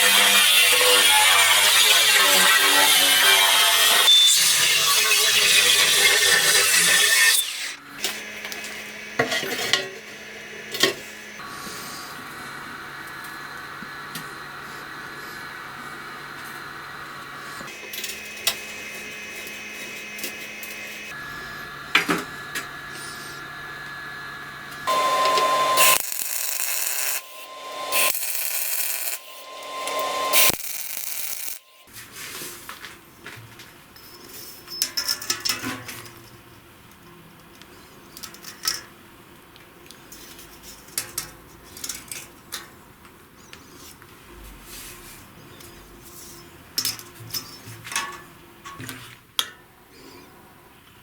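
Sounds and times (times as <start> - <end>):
hissing power tool: 17.4 - 31.9.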